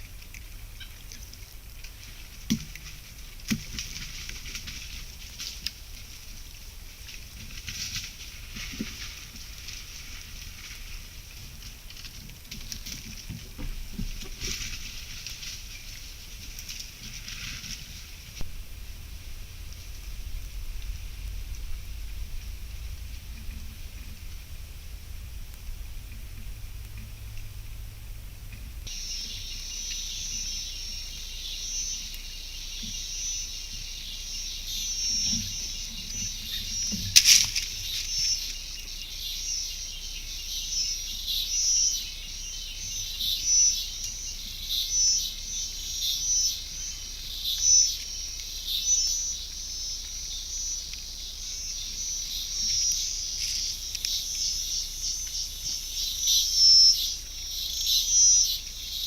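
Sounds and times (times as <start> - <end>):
insects trilling: 0.0 - 59.0
birds chirping: 12.7 - 37.1, 37.7 - 59.0.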